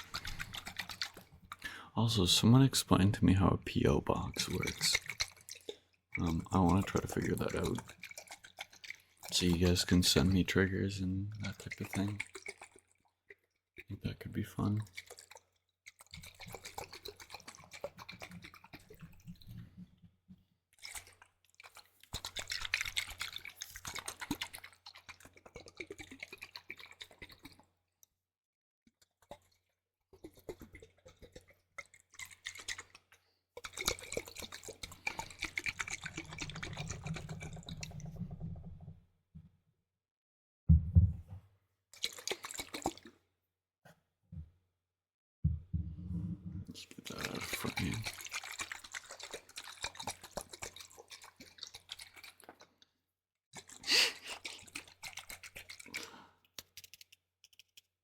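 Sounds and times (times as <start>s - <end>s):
water dripping and sloshing: 0.0s - 3.1s, 3.8s - 28.2s, 28.9s - 39.1s, 41.9s - 43.3s, 46.6s - 53.0s, 53.6s - 57.9s
loud bump: 40.7s - 41.3s.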